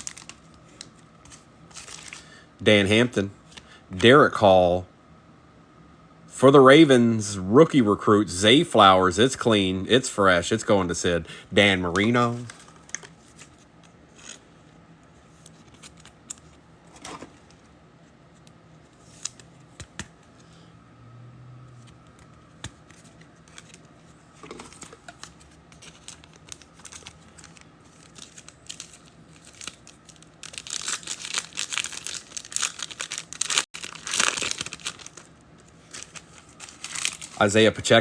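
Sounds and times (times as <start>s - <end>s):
wrapper crinkling and tearing: 0.0s - 2.3s, 23.4s - 37.6s.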